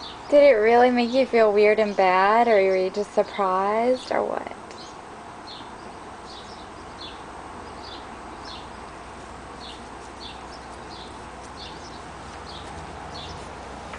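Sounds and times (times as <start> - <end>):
steady background hum: 0.0 - 13.9
small bird chirping: 4.7 - 9.0, 9.6 - 13.7.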